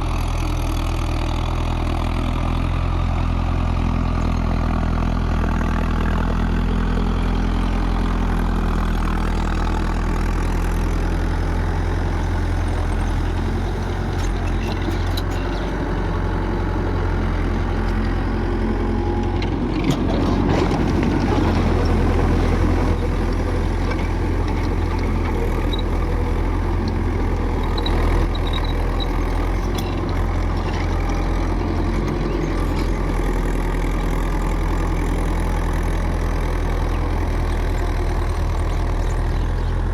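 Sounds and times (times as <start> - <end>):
tractor diesel engine running: 0.0 - 39.9
rotavator tilling: 0.1 - 39.9.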